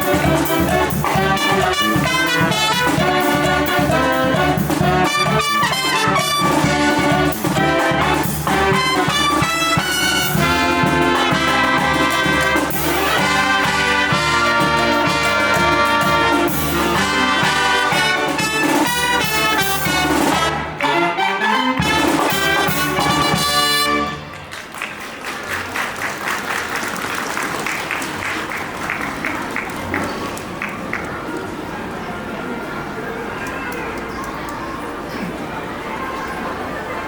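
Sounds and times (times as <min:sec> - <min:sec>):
brass band playing: 0:00.0 - 0:24.6.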